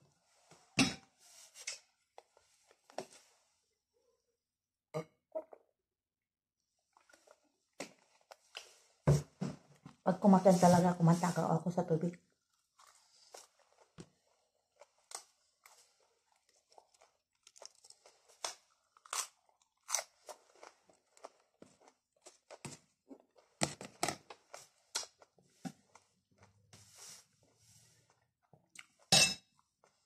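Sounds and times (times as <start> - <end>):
person chewing crisp salad leaves: 6.8 - 9.0, 12.1 - 26.7.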